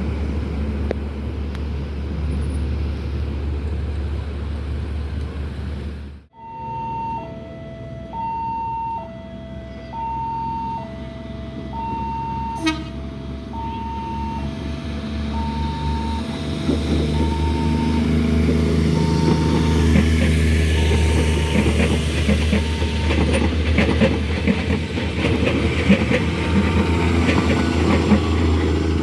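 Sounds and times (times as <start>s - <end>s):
low engine rumble: 0.0s - 29.0s
level crossing two-tone alarm: 6.3s - 12.8s, 13.5s - 14.6s, 15.3s - 23.4s
rumbling noise: 14.4s - 29.0s.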